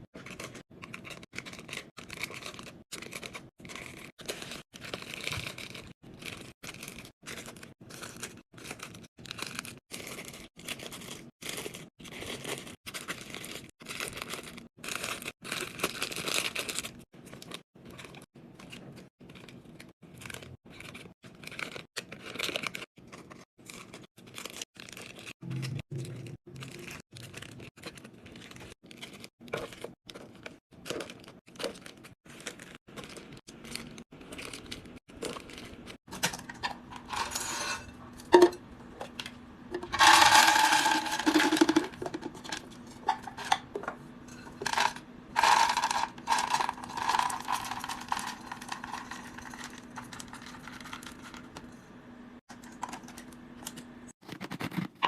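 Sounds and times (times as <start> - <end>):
plastic packaging rustling: 39.1 - 51.7.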